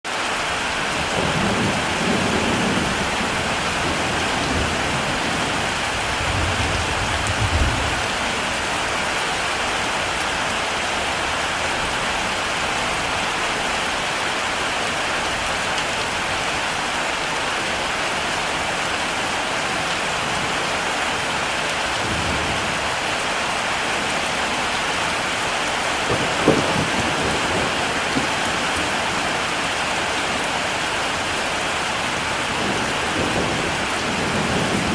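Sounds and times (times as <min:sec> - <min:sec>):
heavy rain: 0:00.0 - 0:34.9
thunder rumbling: 0:00.8 - 0:08.6, 0:25.9 - 0:34.9
sharp thunder crack: 0:26.1 - 0:28.6.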